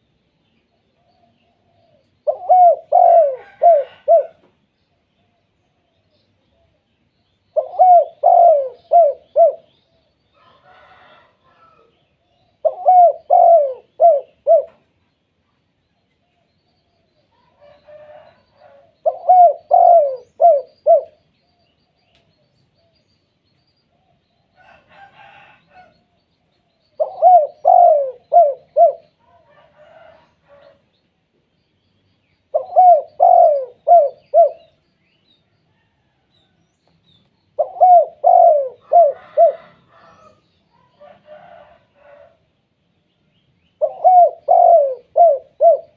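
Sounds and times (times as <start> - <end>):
dove cooing: 1.1 - 4.5, 7.5 - 9.7, 12.6 - 14.8, 17.4 - 21.2, 27.0 - 30.8, 32.5 - 34.8, 37.6 - 42.4, 43.8 - 45.9.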